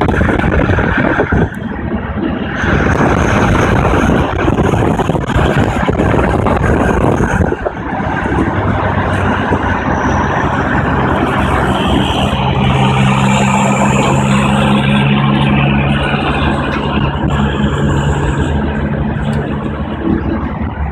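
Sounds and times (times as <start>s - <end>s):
pickup engine and exhaust drone: 0.0s - 20.9s
faint turbo whistle: 11.2s - 15.2s.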